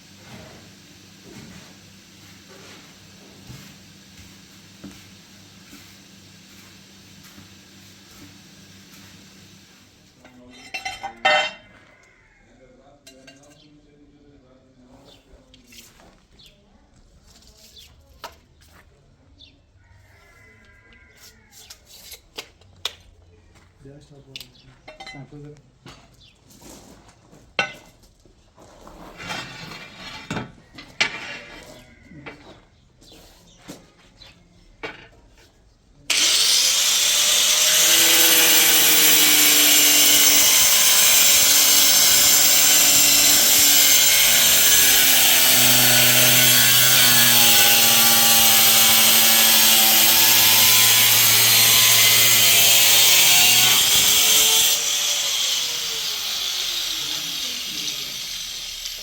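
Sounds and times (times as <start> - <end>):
electric motor running: 36.1 - 59.0.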